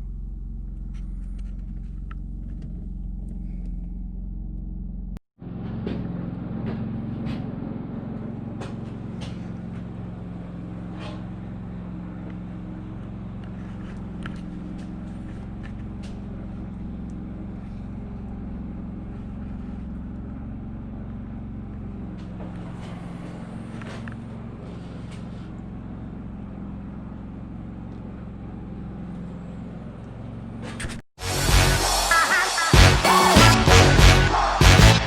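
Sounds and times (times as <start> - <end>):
skid steer engine running: 0.0 - 35.0.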